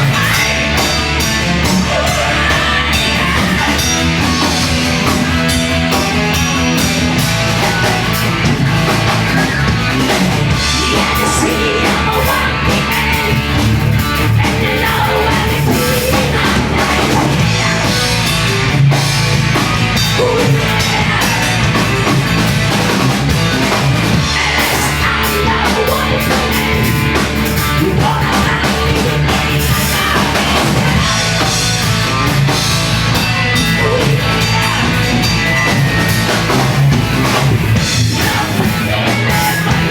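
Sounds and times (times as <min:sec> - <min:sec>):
bass guitar: 0:00.0 - 0:39.9
distorted electric guitars: 0:00.0 - 0:39.9
drum kit: 0:00.0 - 0:39.9.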